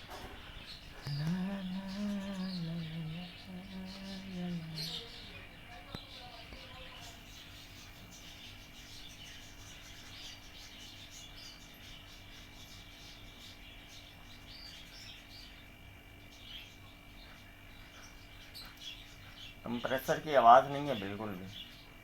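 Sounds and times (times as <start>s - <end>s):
faint steady hum: 0.0s - 22.0s
small birds chirping: 0.0s - 22.0s.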